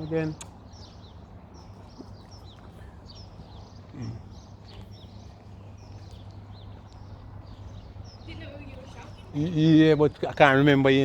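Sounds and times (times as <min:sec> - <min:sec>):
low background hum: 0:00.0 - 0:11.0
small birds chirping: 0:00.0 - 0:11.0.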